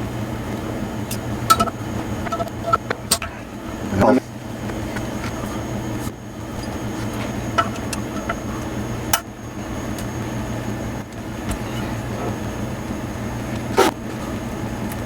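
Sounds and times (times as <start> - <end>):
steady low hum: 0.0 - 15.0
hand tools tapping metal: 6.6 - 9.2.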